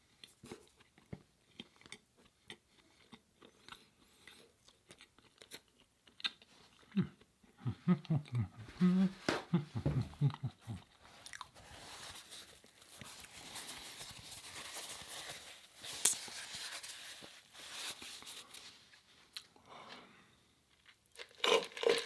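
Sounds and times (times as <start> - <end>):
chewing and wet mouth sounds: 0.1 - 7.6, 10.2 - 11.6
person mumbling with full mouth: 7.0 - 10.9.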